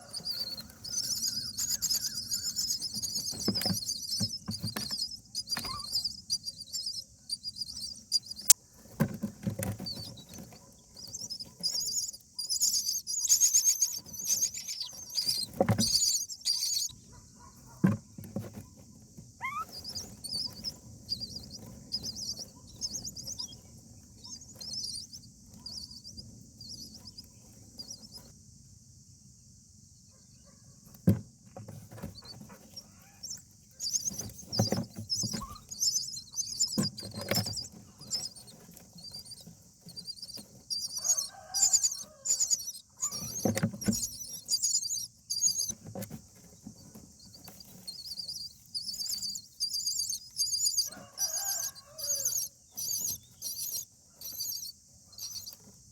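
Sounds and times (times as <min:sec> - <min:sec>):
lower bird calls: 0:00.0 - 0:08.6, 0:09.6 - 0:17.8, 0:19.4 - 0:28.3, 0:32.1 - 0:55.9
nestlings begging calls: 0:00.0 - 0:08.6, 0:09.6 - 0:18.7, 0:19.4 - 0:28.2, 0:32.1 - 0:55.8
thumps in nest: 0:00.3 - 0:06.1, 0:15.1 - 0:16.2, 0:40.0 - 0:44.6.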